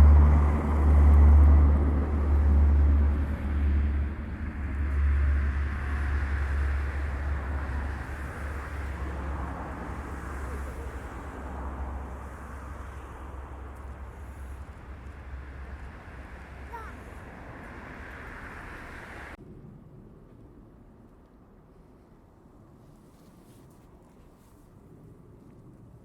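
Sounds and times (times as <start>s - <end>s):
turboprop whine: 0.0s - 21.0s
turboprop aircraft rumble: 0.0s - 23.0s.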